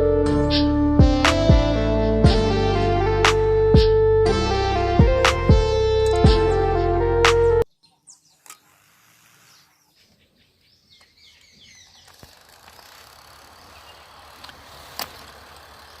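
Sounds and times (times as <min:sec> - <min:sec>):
sharp clicks: 0:06.0 - 0:06.3.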